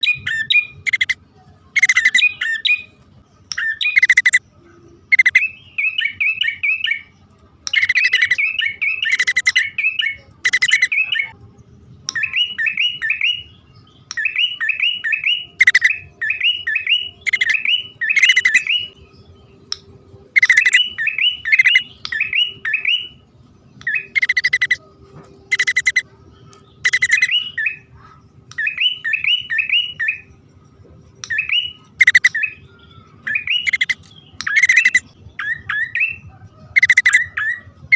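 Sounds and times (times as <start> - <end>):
harsh raspy bird calls: 0.0 - 1.2, 1.8 - 2.7, 3.6 - 4.4, 5.1 - 6.9, 7.7 - 11.4, 14.3 - 18.9, 20.4 - 23.1, 23.9 - 24.8, 25.5 - 26.0, 26.6 - 30.2, 31.3 - 37.9
sharp bird chirps: 0.0 - 1.2, 1.8 - 7.1, 7.7 - 11.4, 12.0 - 23.2, 23.8 - 24.8, 25.5 - 30.4, 31.2 - 37.6.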